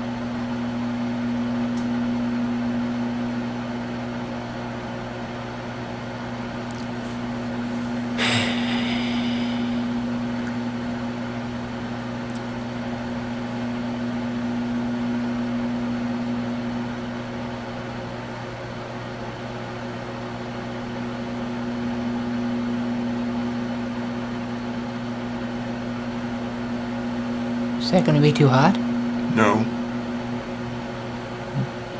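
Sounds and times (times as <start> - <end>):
microwave oven humming: 0.0 - 31.9.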